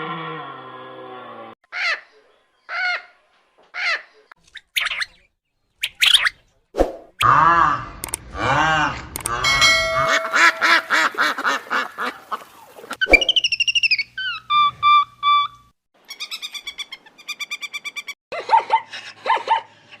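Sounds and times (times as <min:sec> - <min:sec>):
quick repeated bird chirps: 0:04.4 - 0:07.2, 0:13.0 - 0:14.4
evenly spaced bird notes: 0:09.4 - 0:11.8
warbling bird call: 0:09.4 - 0:17.3
fast bird trill: 0:13.0 - 0:14.5.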